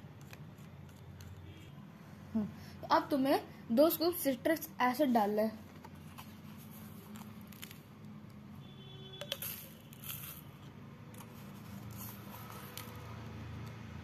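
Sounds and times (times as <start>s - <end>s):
scoop scraping and rustling: 9.2s - 13.0s.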